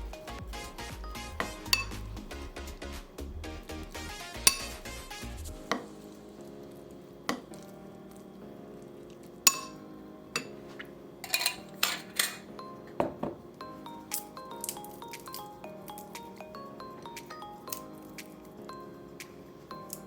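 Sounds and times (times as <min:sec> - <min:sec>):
soft background music: 0:00.0 - 0:20.0
utensils clinking against dishes: 0:04.5 - 0:04.8, 0:09.5 - 0:09.8, 0:10.4 - 0:13.4.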